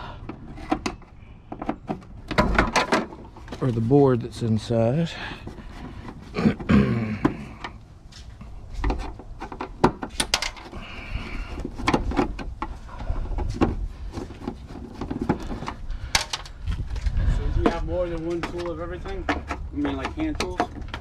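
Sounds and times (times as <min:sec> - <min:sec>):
clanks of tools and metal parts: 0:08.7 - 0:10.8, 0:18.2 - 0:21.0.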